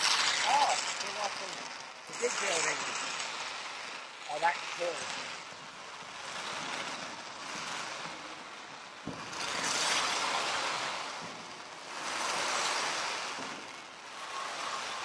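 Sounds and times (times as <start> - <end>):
fireworks hissing and crackling: 0.0 - 15.0
sharp firework pop: 9.0 - 11.6.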